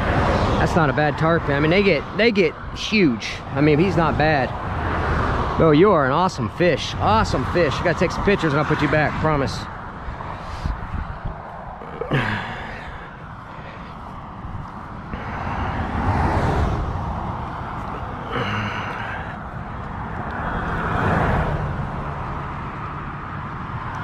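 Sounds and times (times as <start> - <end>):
road traffic on bridge overhead: 0.0 - 24.0
short sighs: 11.8 - 14.0.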